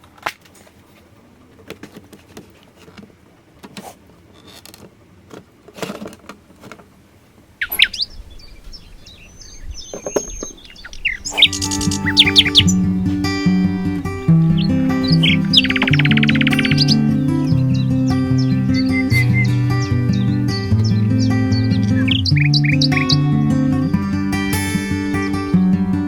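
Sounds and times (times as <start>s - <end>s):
birds chirping and trilling: 7.6s - 24.0s
solo acoustic guitar piece: 10.2s - 26.0s.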